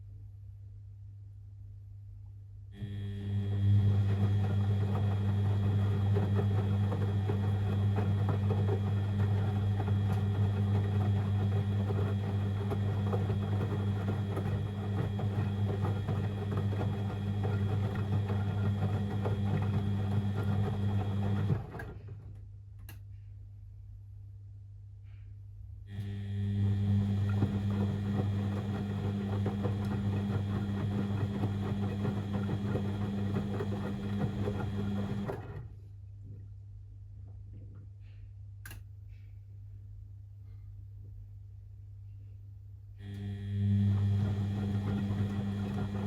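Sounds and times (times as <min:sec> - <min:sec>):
washing machine humming and rushing: 0:02.8 - 0:22.4, 0:26.0 - 0:35.8, 0:43.1 - 0:46.0.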